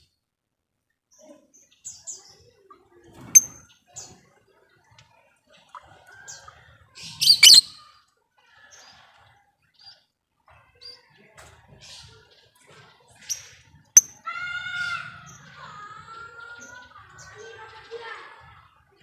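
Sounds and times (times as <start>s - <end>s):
loud harsh bird screech: 7.2s - 7.7s
lovebirds chirping: 7.2s - 7.7s
pitched bird call: 7.2s - 7.8s.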